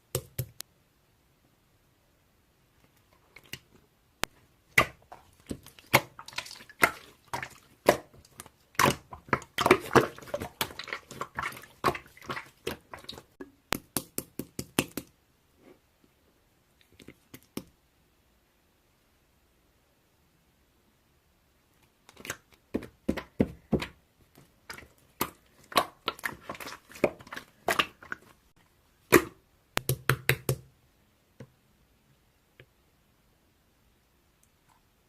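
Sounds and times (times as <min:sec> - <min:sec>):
slime squished by hand: 0:04.7 - 0:14.0, 0:24.6 - 0:28.4.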